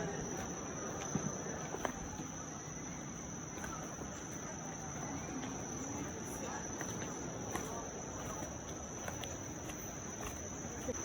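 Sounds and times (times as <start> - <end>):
insects chirring: 0.0 - 11.0
low background noise: 0.0 - 11.0.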